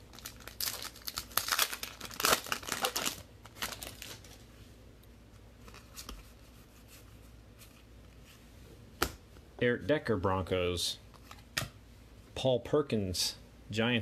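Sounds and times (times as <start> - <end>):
foil wrapper crinkling: 0.1 - 4.4.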